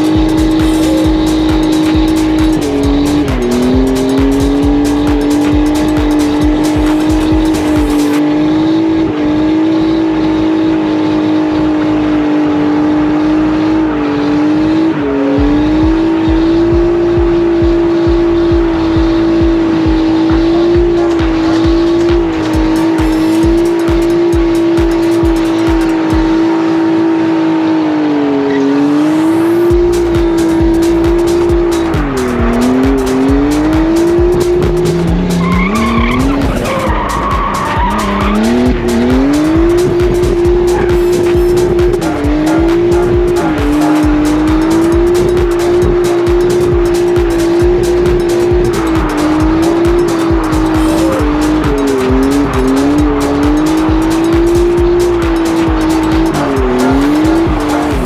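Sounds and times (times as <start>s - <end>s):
car engine at high revs: 0.0s - 58.0s
tyres squealing: 29.7s - 58.0s.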